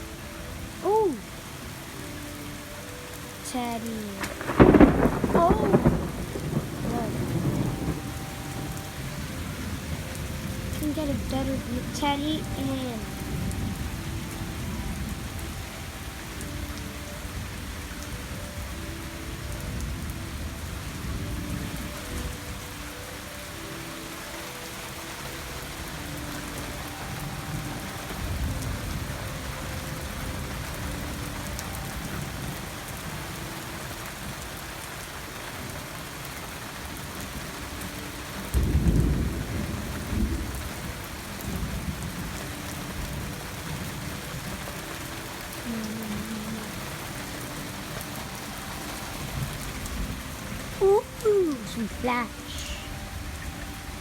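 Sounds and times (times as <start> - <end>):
steady heavy rain: 0.0 - 54.0
thunder rumbling: 3.5 - 22.8, 37.4 - 54.0.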